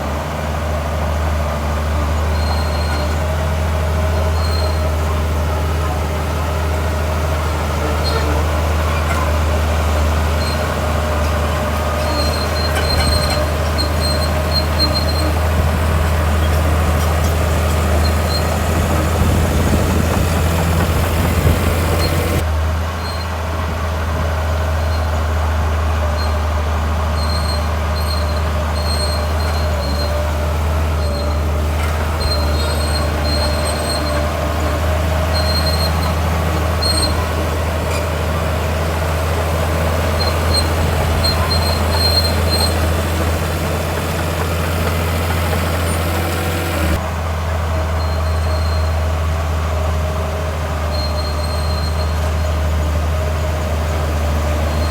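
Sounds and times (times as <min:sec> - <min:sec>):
diesel earthmoving machinery: 0:00.0 - 0:54.9
high squeaks: 0:10.3 - 0:22.4, 0:39.3 - 0:47.0.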